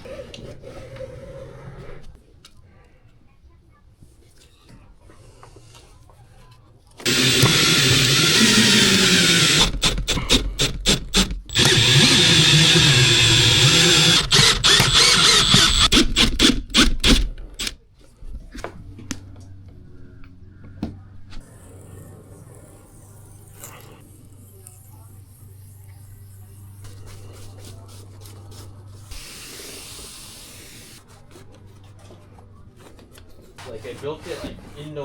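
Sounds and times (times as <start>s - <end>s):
loud power tool running in bursts: 7.0s - 17.2s.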